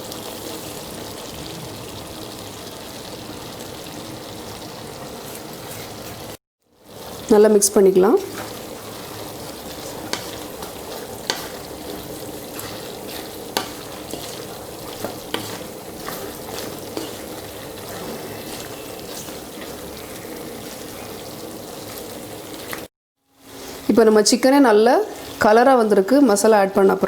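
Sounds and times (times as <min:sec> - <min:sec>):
chicken sizzling in a pan: 0:00.0 - 0:27.0
utensil knocking against pan: 0:10.1 - 0:11.6.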